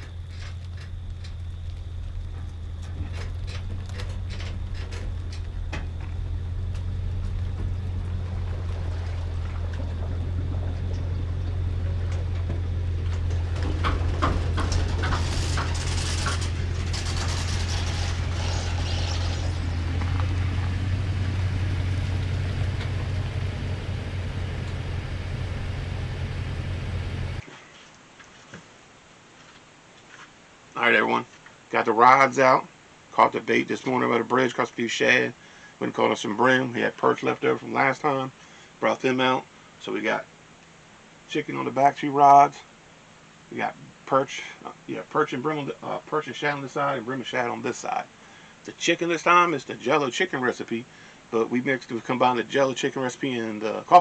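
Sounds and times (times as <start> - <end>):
engine droning: 0.0 - 27.4
rushing noise: 0.0 - 27.4.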